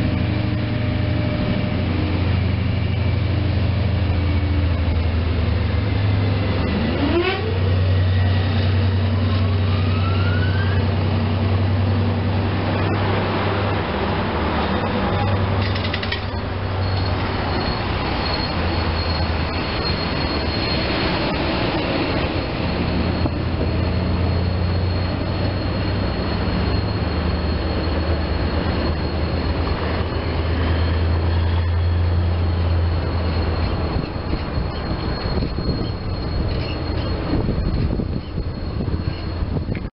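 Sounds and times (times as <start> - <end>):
train wheels rumbling on track: 0.0 - 39.9
high-pitched wheel squeal: 2.9 - 39.9.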